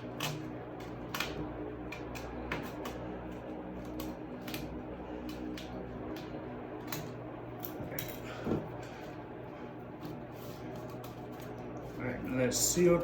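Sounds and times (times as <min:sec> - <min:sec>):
scissors cutting tape: 0:00.0 - 0:08.2
steady low hum: 0:00.0 - 0:13.0
tape crackling: 0:00.0 - 0:13.0.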